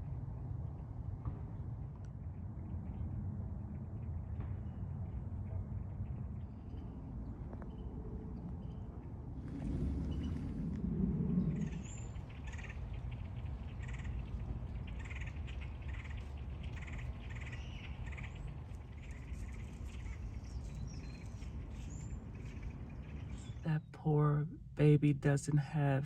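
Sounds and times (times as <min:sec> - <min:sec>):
steady low rumble: 0:02.6 - 0:26.0
birds calling: 0:11.6 - 0:24.4.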